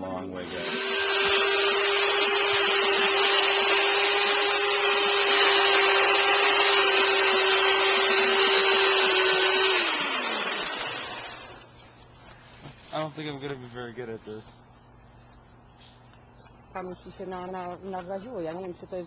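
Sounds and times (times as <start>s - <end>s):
small electric motor humming: 0.3s - 11.7s.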